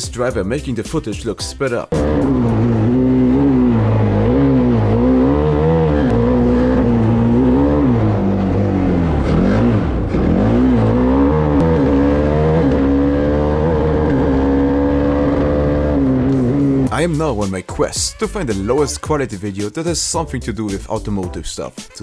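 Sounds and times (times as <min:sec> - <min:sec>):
race car engine revving: 0:01.9 - 0:17.2.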